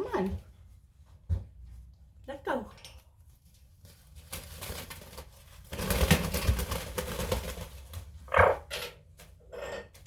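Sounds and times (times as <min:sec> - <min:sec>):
rustling and scuffling: 0:03.1 - 0:08.3.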